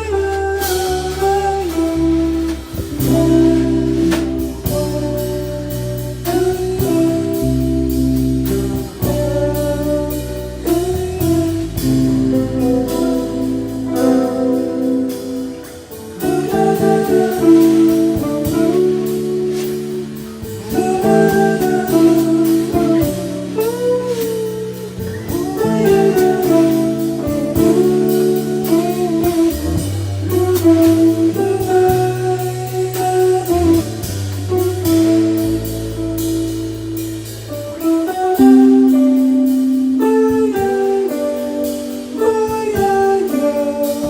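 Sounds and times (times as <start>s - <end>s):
bass: 0.0s - 44.0s
drum kit steady beat: 0.0s - 44.0s
guitar with bent sliding notes: 0.0s - 44.0s.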